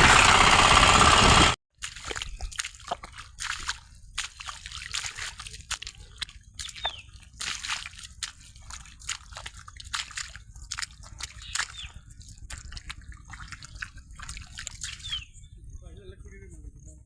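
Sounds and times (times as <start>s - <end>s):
water splashing and sloshing: 1.7s - 15.2s
low steady rumble: 3.0s - 17.0s.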